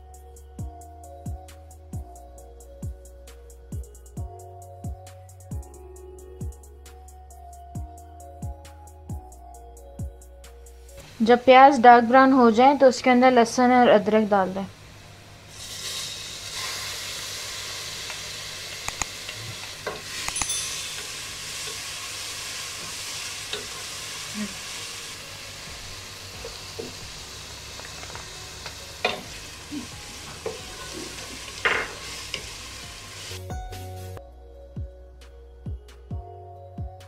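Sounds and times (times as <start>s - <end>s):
food sizzling in hot fat: 15.4s - 34.2s.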